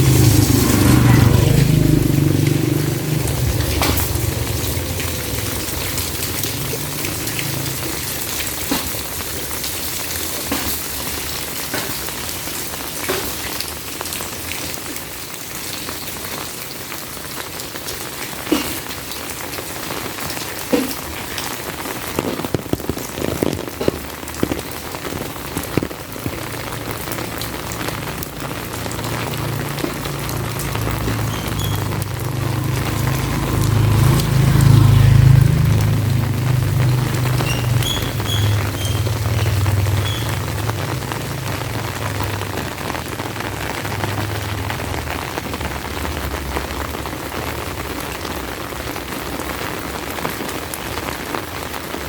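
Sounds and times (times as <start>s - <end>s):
loud drips: 0.0s - 14.4s, 20.3s - 45.1s
heavy rain: 0.0s - 52.0s.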